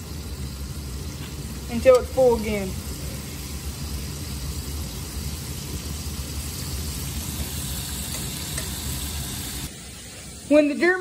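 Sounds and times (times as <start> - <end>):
meat sizzling in hot oil: 0.0 - 10.5.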